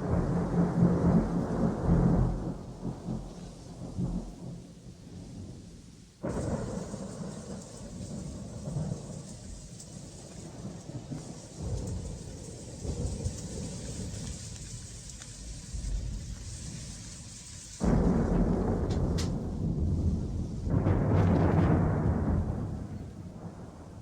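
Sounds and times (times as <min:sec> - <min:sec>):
rain hiss: 0:00.0 - 0:24.0
thunder rumble: 0:00.0 - 0:24.0.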